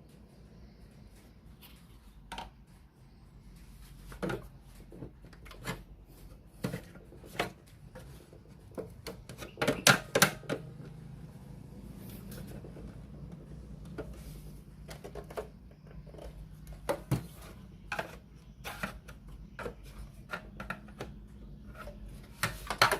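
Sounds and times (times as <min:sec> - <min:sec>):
clicks and knocks of hard objects: 0:14.8 - 0:22.9.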